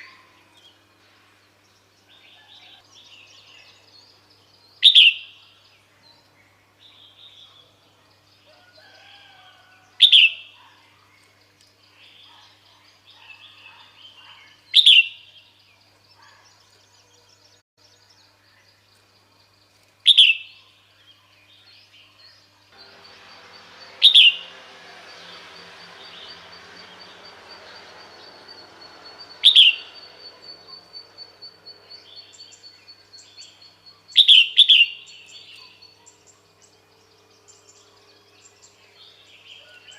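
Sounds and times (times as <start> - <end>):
bird calling sharp notes: 22.8 - 33.0.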